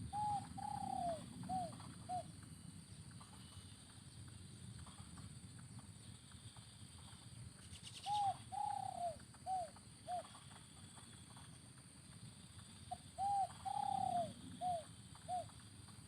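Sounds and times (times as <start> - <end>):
dove cooing: 0.0 - 2.3, 8.0 - 10.4, 12.9 - 15.6.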